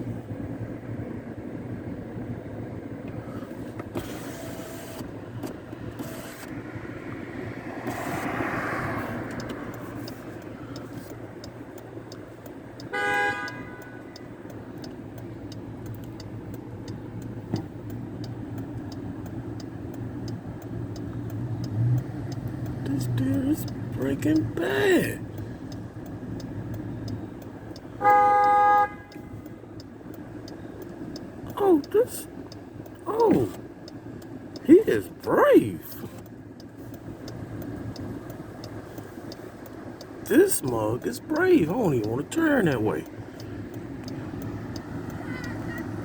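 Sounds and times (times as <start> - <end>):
road noise and engine hum: 0.0 - 46.0
car horn honk: 12.9 - 14.2, 28.0 - 29.4.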